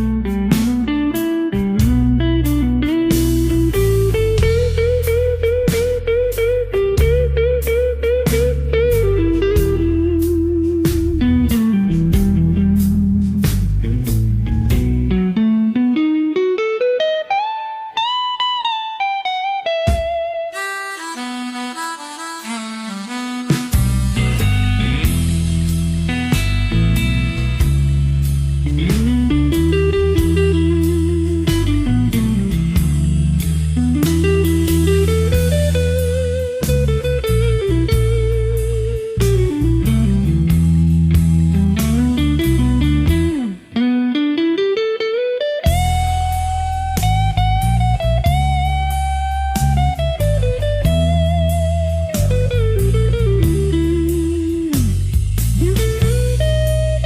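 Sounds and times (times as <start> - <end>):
drums: 0.0 - 15.3, 19.9 - 20.4, 23.4 - 43.6, 45.7 - 57.0
bass line: 0.0 - 16.0, 19.9 - 43.8, 45.6 - 57.0
electric guitar melody: 0.0 - 57.0
drum beat: 3.1 - 6.4, 19.9 - 28.0, 28.6 - 38.4.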